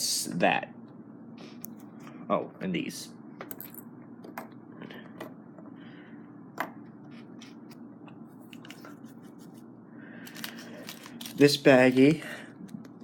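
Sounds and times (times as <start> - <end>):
low steady hum: 0.0 - 13.0
clicks of parts and packaging handled: 10.2 - 12.1.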